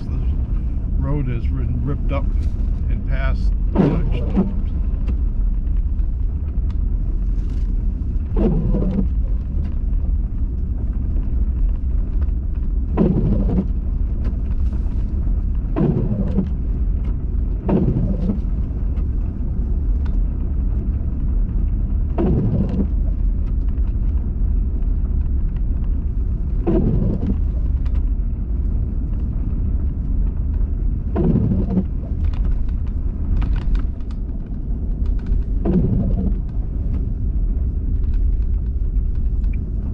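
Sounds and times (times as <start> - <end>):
car cabin rumble: 0.0 - 39.9
windshield wiper stroke: 2.3 - 5.2, 7.4 - 9.8, 12.9 - 19.1, 22.2 - 23.2, 26.6 - 27.8, 31.1 - 34.2, 35.3 - 37.2.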